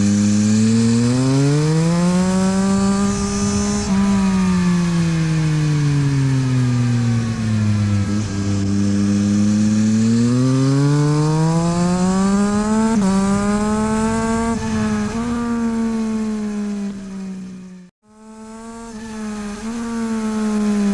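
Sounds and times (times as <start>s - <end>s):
motorcycle engine revving: 0.0s - 20.9s.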